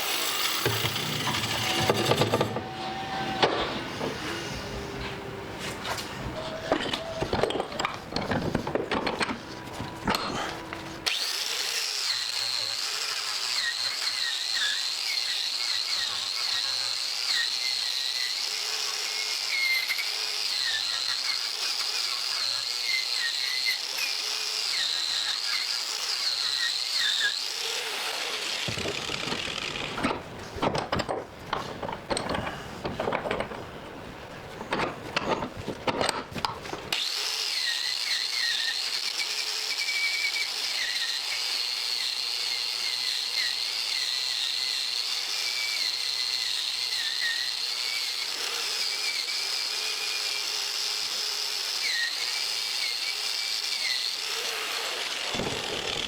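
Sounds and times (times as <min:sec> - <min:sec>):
power tool motor whining: 0:00.0 - 0:05.2, 0:09.4 - 0:30.2, 0:36.9 - 0:56.0
scraping and knocking: 0:28.7 - 0:33.7.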